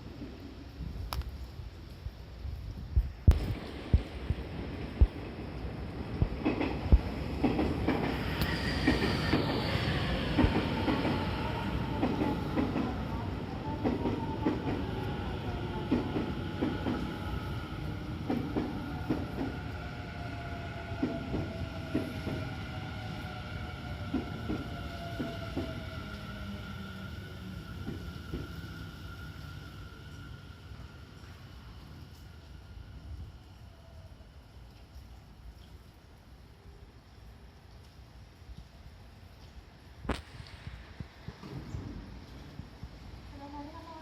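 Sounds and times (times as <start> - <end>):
train wheels clacking over rail joints: 6.3 - 9.6
train braking: 6.4 - 34.0.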